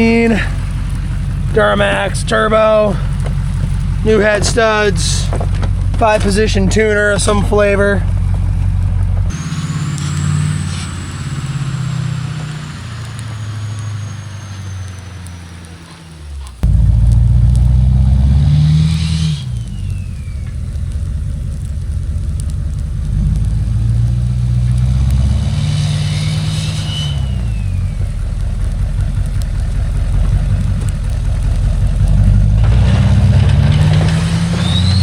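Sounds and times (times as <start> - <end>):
diesel pickup engine revving: 0.0 - 35.0
turbo whistle: 9.3 - 21.1, 25.4 - 28.4, 34.5 - 35.0.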